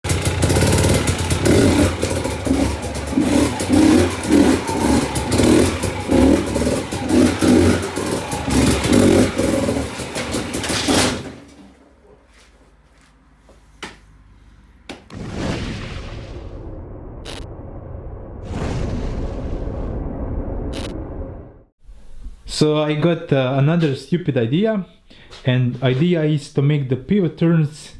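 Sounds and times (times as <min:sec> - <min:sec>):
dirt bike engine revving: 0:00.0 - 0:11.5.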